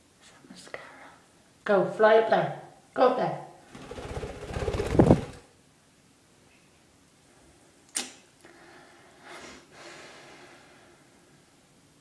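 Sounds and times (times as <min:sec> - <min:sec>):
bird wings beating: 0:03.7 - 0:05.5
sharp click: 0:07.9 - 0:08.2.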